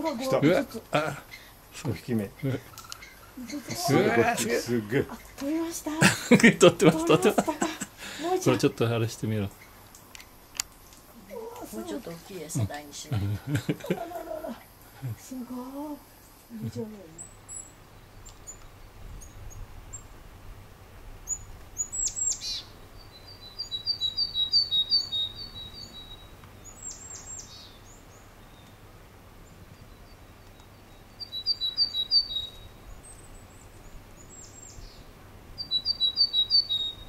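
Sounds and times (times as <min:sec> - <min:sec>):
songbirds chirping: 0:00.0 - 0:37.0
downward sweeping bird calls: 0:21.2 - 0:28.8, 0:29.5 - 0:37.0.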